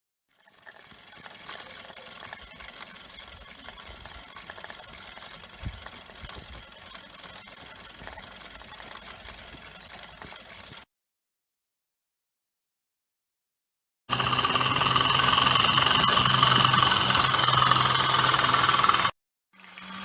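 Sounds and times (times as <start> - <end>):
model steam engines clattering: 0.4 - 10.8.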